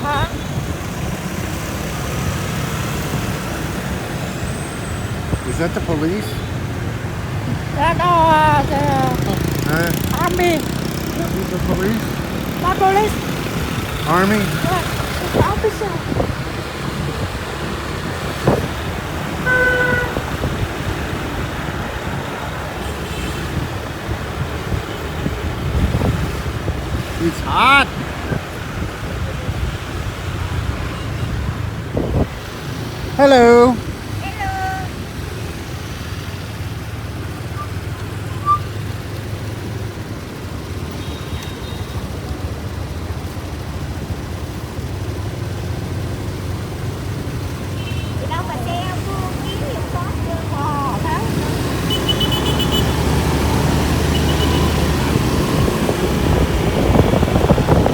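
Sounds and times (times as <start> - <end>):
road noise: 0.0 - 57.9
motorbike engine: 5.4 - 22.8.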